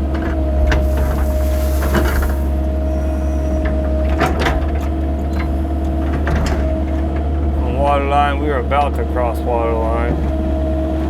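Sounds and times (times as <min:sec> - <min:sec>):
hydraulic whine: 0:00.1 - 0:05.3
excavator engine running: 0:00.2 - 0:06.1.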